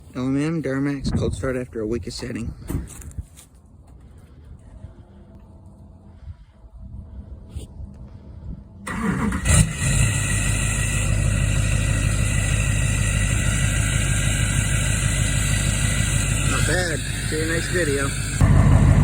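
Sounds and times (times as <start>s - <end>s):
diesel engine idling: 8.8s - 19.0s
starter motor cranking: 8.9s - 19.0s.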